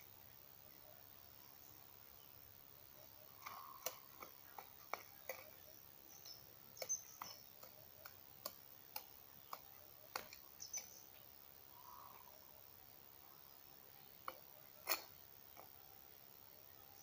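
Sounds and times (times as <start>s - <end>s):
small birds chirping: 0.0s - 17.0s
sharp clicks: 3.4s - 5.7s, 6.7s - 11.2s.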